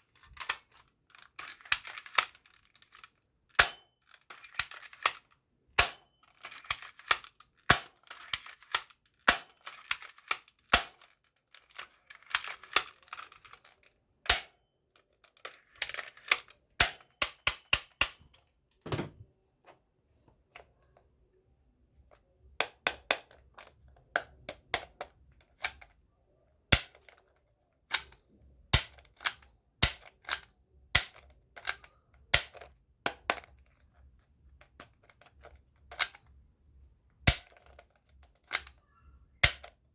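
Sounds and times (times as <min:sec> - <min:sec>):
plastic toy guns clicking: 0:00.2 - 0:14.6, 0:15.2 - 0:18.4, 0:22.6 - 0:26.0, 0:26.7 - 0:33.8, 0:34.6 - 0:36.3, 0:37.2 - 0:38.8, 0:39.4 - 0:39.8.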